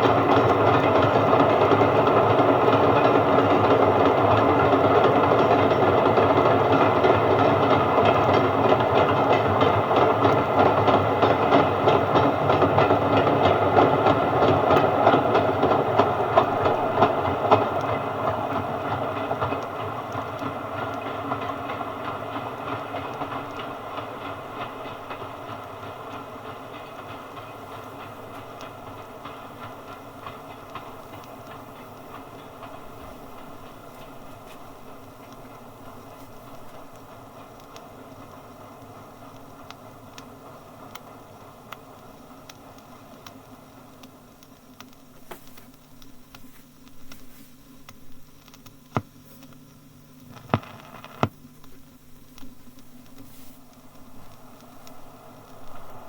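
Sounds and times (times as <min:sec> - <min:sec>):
train wheels clicking over rail joints: 0:00.0 - 0:41.2.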